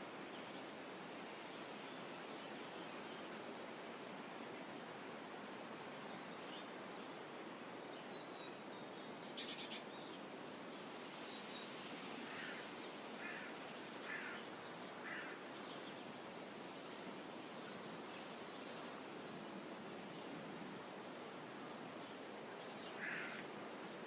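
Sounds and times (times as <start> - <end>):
soft bird calls: 7.8 - 10.3, 12.3 - 16.2, 22.5 - 24.0
faint bird chirps: 7.9 - 10.2.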